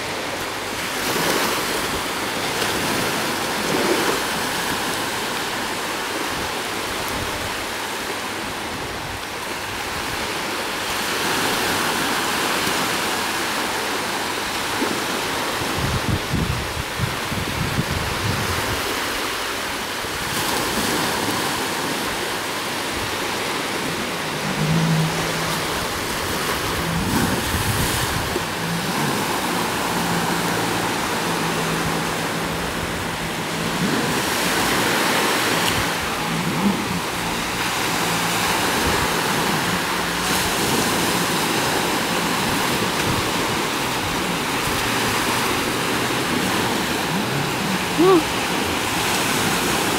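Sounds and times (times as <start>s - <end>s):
jet ski engine drone: 0.0s - 49.9s
wind noise: 15.5s - 49.9s
water spray rushing: 20.2s - 49.9s.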